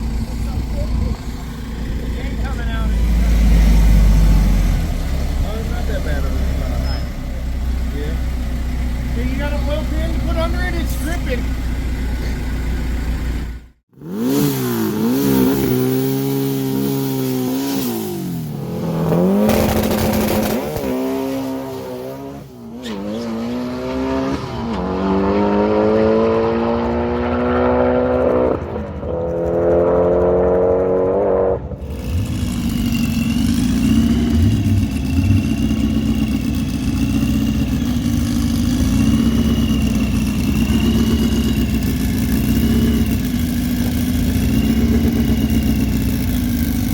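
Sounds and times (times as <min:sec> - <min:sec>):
drag car engine accelerating: 0:00.0 - 0:11.4, 0:14.0 - 0:46.9.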